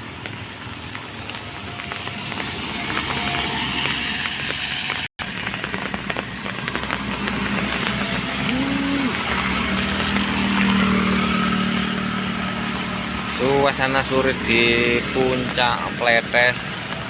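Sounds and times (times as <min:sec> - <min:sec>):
engine hum: 0:00.0 - 0:17.0
vehicles on a road: 0:00.0 - 0:17.0.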